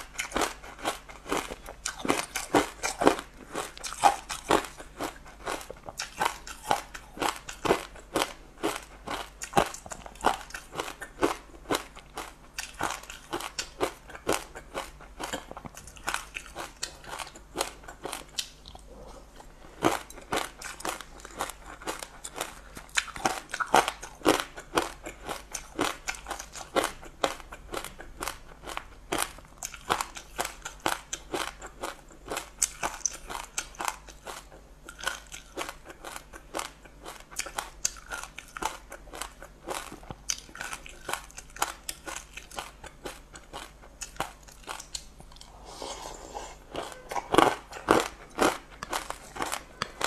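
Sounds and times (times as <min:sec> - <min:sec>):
crunchy chewing close up: 0:00.0 - 0:50.0.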